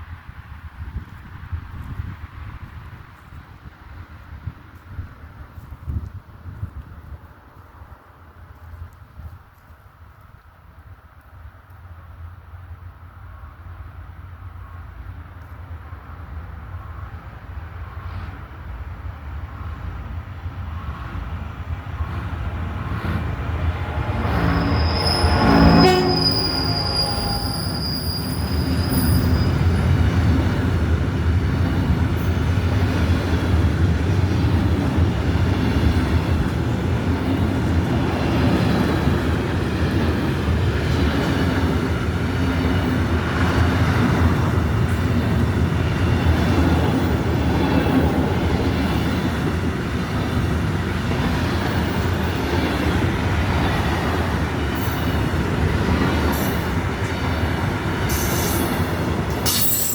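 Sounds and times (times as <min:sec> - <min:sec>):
train wheels rumbling on rails: 0:00.0 - 0:59.9
high squeaks: 0:24.4 - 0:29.8.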